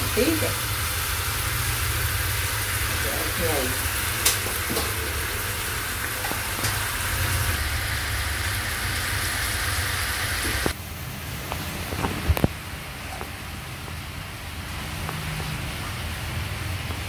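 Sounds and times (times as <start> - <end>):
meat sizzling in a frying pan: 0.0 - 10.8.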